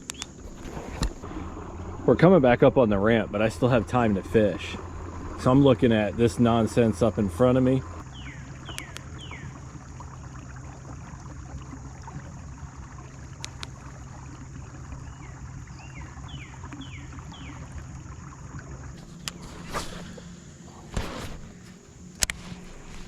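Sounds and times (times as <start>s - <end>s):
electric trolling motor hum: 0.1s - 23.0s
bird whistling calls: 8.1s - 9.5s
faint clicks: 8.7s - 9.1s, 13.3s - 13.9s.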